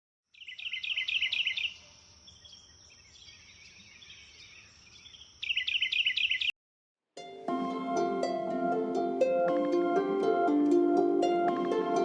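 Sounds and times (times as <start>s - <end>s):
bird chirping rapidly: 0.3s - 6.5s.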